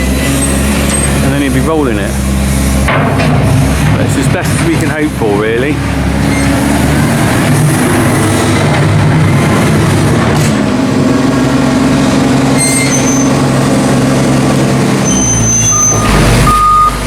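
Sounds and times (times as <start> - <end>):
tractor engine working: 0.0 - 17.0
reversing beeper: 12.5 - 13.4, 15.0 - 17.0.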